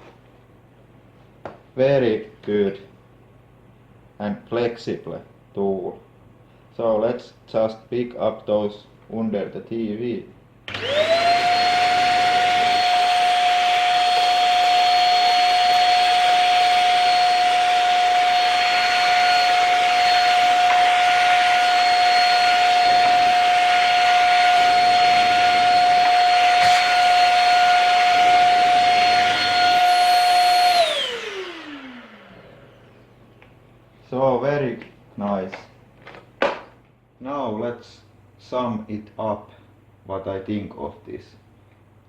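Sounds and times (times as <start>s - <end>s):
vacuum motor winding down: 10.7s - 33.1s
vacuum cleaner whining: 10.7s - 33.3s.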